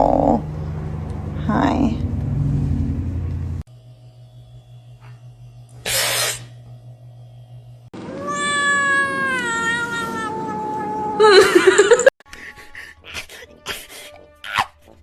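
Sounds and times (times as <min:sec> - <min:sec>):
burst of hiss: 0:05.8 - 0:06.5
cat meowing: 0:08.1 - 0:11.3.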